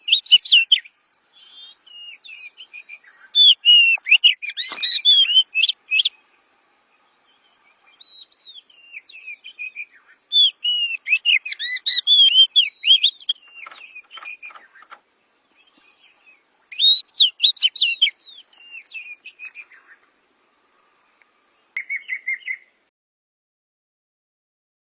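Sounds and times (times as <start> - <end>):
bird song whistled phrases: 0.0 - 6.3, 7.2 - 15.0, 15.6 - 20.0, 21.8 - 22.8
bird trill: 0.0 - 6.3, 6.9 - 20.1, 21.8 - 22.8
faint steady high tone: 0.0 - 22.9.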